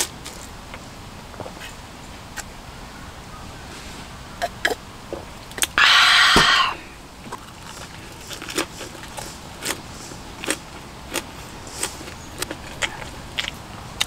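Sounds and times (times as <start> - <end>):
loud breathy exhale: 5.8 - 7.0
food chewing with soft crunches: 7.2 - 14.0.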